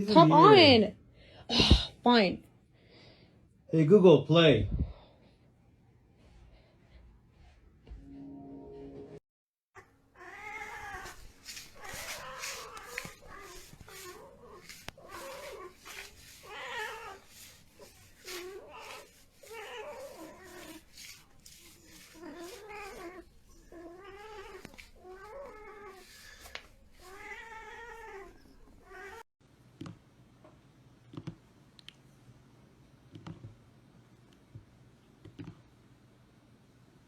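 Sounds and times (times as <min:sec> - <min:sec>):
cat meowing: 0:09.8 - 0:20.8, 0:22.1 - 0:29.2.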